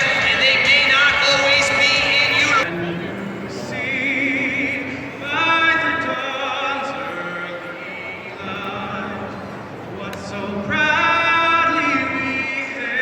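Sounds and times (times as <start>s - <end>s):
person singing with vibrato: 0.0s - 13.0s.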